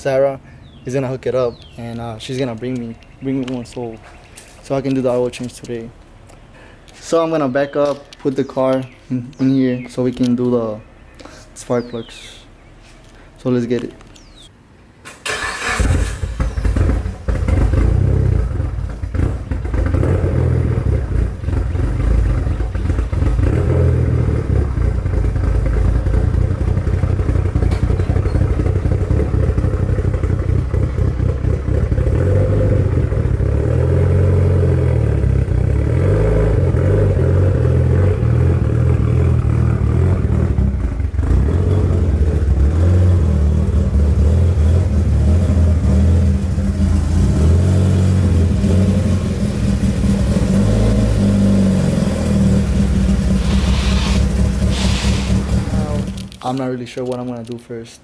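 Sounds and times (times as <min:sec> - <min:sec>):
car engine starting: 0:15.0 - 0:56.6
car engine running at low speed: 0:16.4 - 0:56.4.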